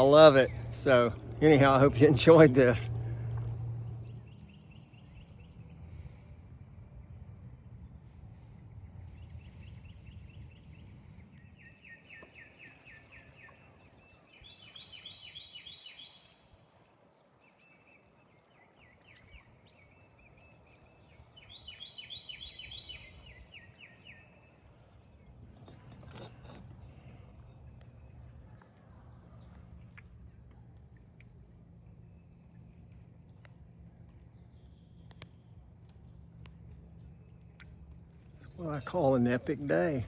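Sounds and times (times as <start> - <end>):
low outdoor rumble: 0.0 - 11.6, 22.9 - 40.0
bird singing trills: 9.2 - 16.5, 17.5 - 29.6.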